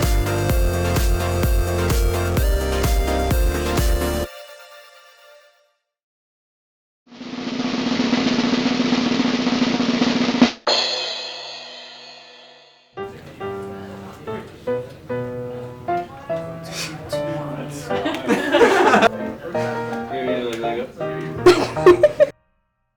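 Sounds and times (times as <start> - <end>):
snare drum roll: 7.2 - 11.4
guitar music: 13.0 - 22.3.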